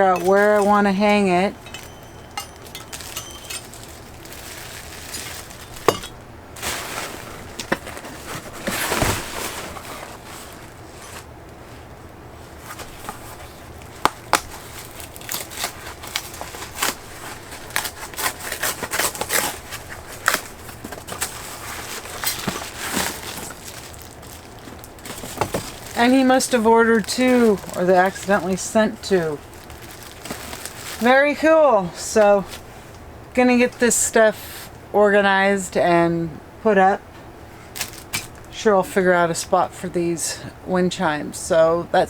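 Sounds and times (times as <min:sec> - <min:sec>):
packaging crinkling: 0:00.0 - 0:11.3, 0:12.5 - 0:31.4, 0:37.7 - 0:38.5
packaging rustle: 0:00.0 - 0:11.3, 0:12.5 - 0:31.3, 0:37.7 - 0:38.5.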